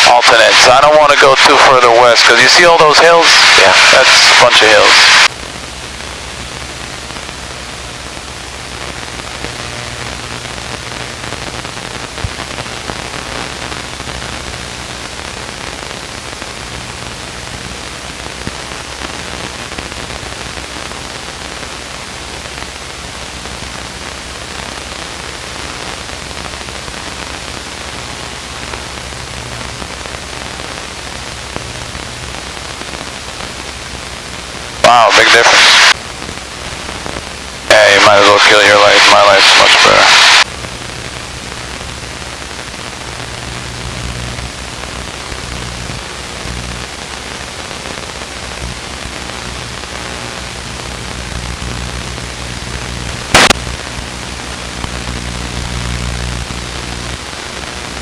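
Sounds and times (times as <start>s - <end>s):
intercom hiss: 0.0s - 5.3s, 34.7s - 36.0s, 37.6s - 40.5s.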